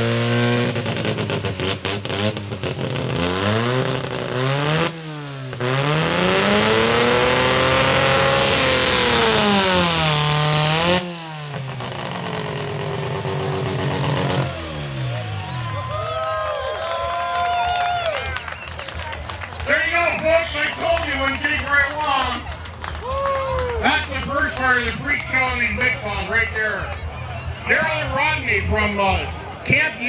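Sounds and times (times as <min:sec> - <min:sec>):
rotary hotsaw engine revving: 0:00.0 - 0:15.8.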